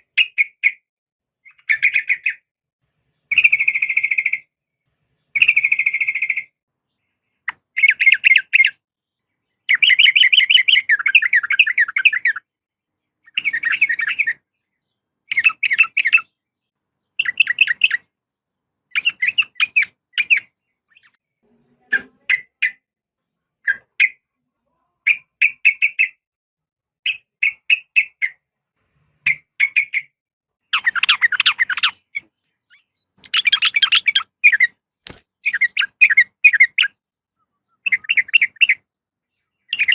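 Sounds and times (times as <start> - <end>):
bird chattering calls: 7.5 - 8.8, 15.3 - 16.3, 18.9 - 21.2, 30.7 - 34.8, 35.4 - 37.0, 37.8 - 38.8, 39.7 - 39.9.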